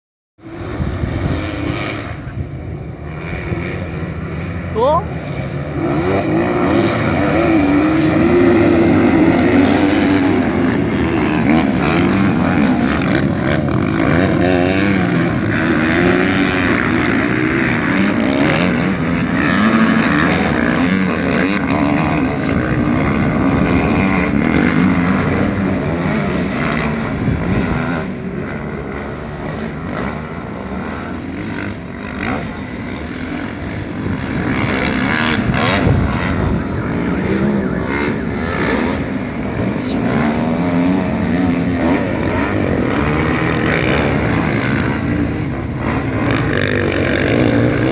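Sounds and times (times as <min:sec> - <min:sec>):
racing motorcycle engines revving: 0:00.4 - 0:47.9.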